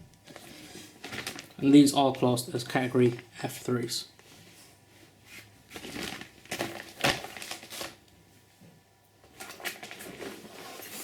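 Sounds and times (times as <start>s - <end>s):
packaging rustling: 0.2s - 1.9s, 5.4s - 8.1s, 9.4s - 11.0s.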